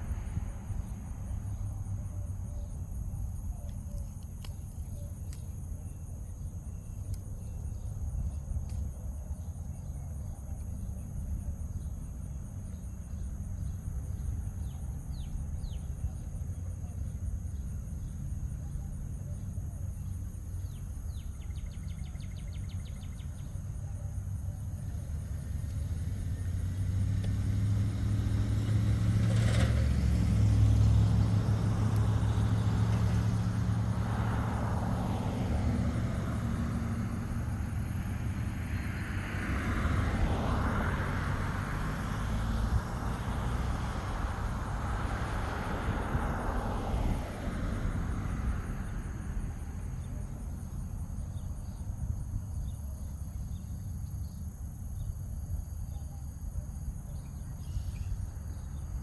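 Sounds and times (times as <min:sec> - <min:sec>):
vehicle passing close by: 0:00.0 - 0:02.3, 0:24.6 - 0:55.8
high insect drone: 0:00.0 - 0:59.0
road traffic rumbling: 0:00.0 - 0:59.0.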